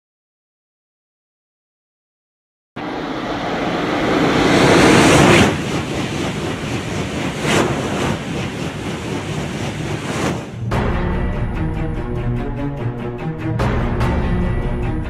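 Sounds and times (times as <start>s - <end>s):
high-speed train rushing past: 2.8s - 11.9s.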